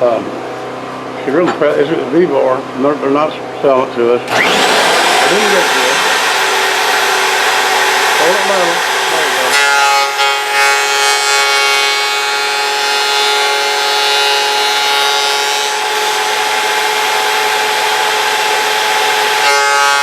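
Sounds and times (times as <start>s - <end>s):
electric wood planer whining: 4.2s - 20.0s.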